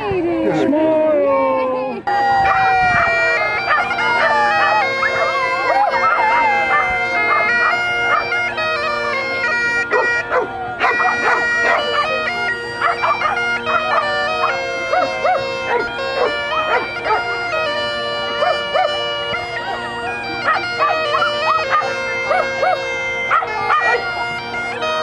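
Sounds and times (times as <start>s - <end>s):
bagpipe music: 0.0s - 25.0s
dog barking and yipping: 2.5s - 8.4s, 9.4s - 12.2s, 12.8s - 17.3s, 18.3s - 19.0s, 20.4s - 24.3s.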